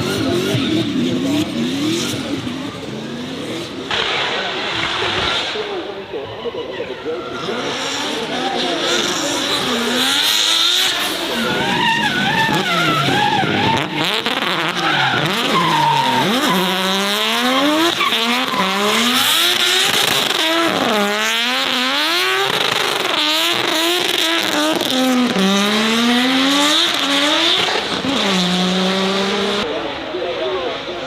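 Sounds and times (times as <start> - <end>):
tyres squealing and skidding: 0.0 - 29.6
race car engine revving: 0.0 - 31.0.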